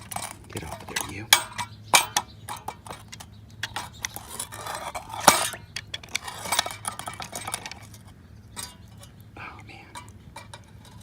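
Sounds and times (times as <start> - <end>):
metal tool clinking and scraping: 0.0 - 9.2, 9.9 - 11.0
sharp metal knock: 1.3 - 3.0, 5.2 - 5.7.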